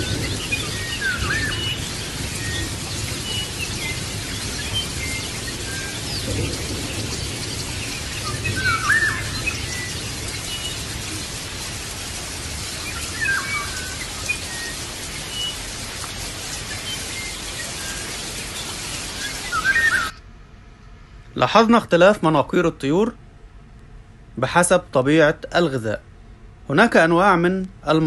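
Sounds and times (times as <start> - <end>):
birds chirping: 0.0 - 20.2
steady background hiss: 0.0 - 28.0.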